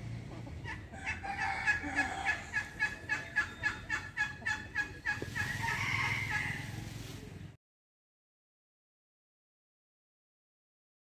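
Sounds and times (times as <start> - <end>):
hen clucking: 0.0 - 7.4.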